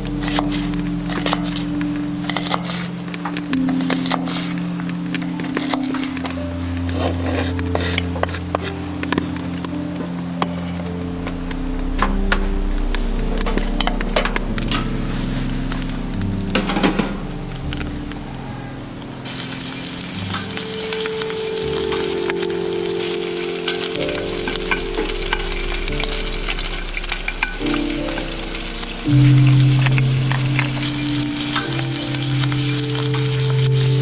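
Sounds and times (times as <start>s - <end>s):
crackles and pops: 0.0s - 34.0s
food sizzling in a pan: 19.3s - 34.0s.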